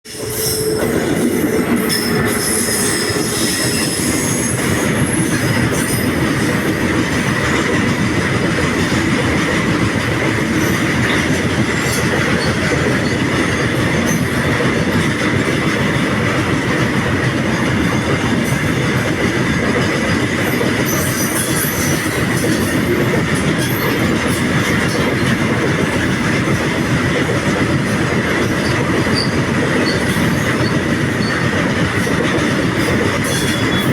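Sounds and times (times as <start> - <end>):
train wheels rumbling on rail: 0.0 - 33.9
high wheel squeal: 0.1 - 6.6, 20.8 - 22.3, 32.7 - 33.9.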